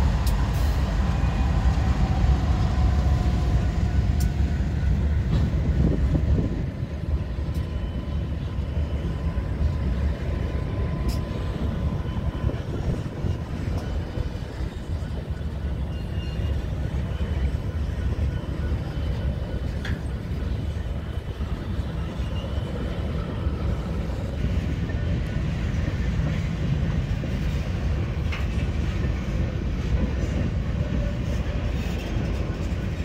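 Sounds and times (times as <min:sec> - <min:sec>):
wind rumble on microphone: 0:00.0 - 0:07.6
freight train rumbling past: 0:00.0 - 0:33.0.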